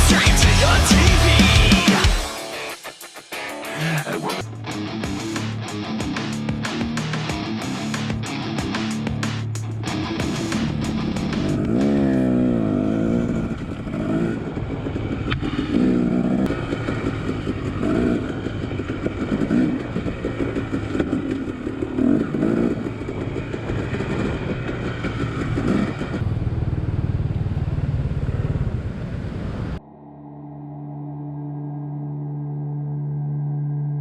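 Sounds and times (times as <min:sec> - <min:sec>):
dirt bike engine revving: 0:00.0 - 0:02.3, 0:05.0 - 0:29.8.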